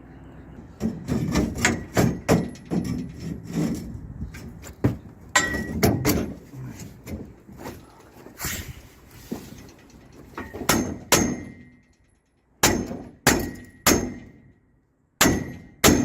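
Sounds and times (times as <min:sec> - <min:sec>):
tools striking metal: 0:05.4 - 0:06.2, 0:10.4 - 0:12.0, 0:12.6 - 0:14.5.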